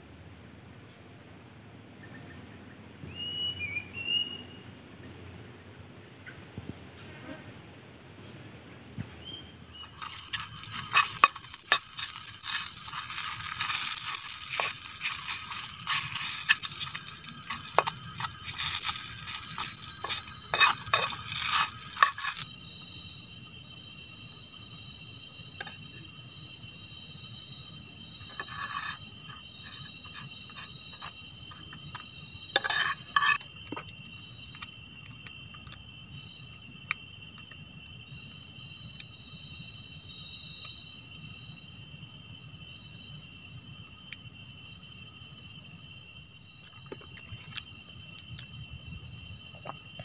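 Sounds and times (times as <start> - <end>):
insects droning: 0.0 - 50.0
bird chirp: 3.1 - 4.7, 9.1 - 10.0
food sizzling in a hot pan: 9.8 - 22.5.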